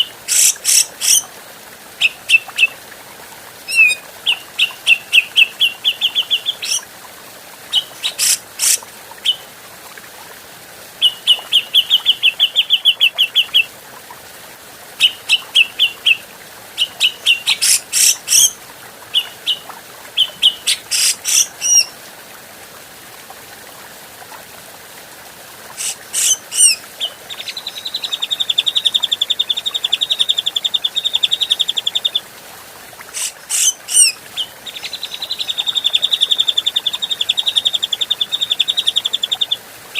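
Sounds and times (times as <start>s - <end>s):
bird chattering song: 0.3s - 1.2s, 3.7s - 6.8s, 7.7s - 9.4s, 16.8s - 18.5s, 20.2s - 21.9s, 25.8s - 32.2s, 33.2s - 39.5s
loud sharp bird calls: 20.2s - 21.9s, 25.8s - 28.2s, 33.2s - 34.1s.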